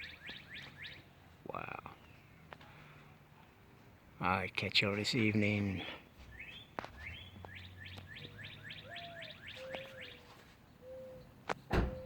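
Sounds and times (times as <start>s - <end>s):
songbird whistling: 6.3s - 11.3s
dove cooing: 8.2s - 10.2s, 10.8s - 11.3s
sharp thump: 11.7s - 12.0s.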